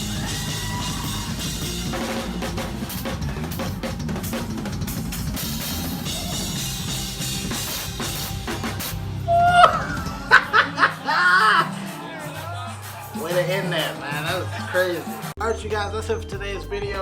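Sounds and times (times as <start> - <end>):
drum kit playing with band: 0.0 - 17.0.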